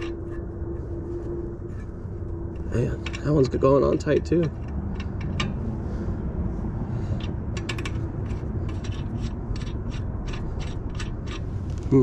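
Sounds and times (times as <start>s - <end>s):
lug nut scraping and clicking: 0.0s - 5.9s, 6.9s - 12.0s
low rumble: 0.0s - 12.0s.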